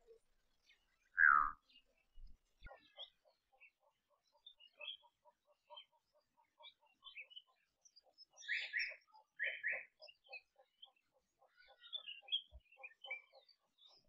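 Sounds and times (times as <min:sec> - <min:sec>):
loud paired bird calls: 0:00.0 - 0:14.0
birds pipping: 0:00.7 - 0:05.1
higher bird chirps: 0:01.1 - 0:01.6.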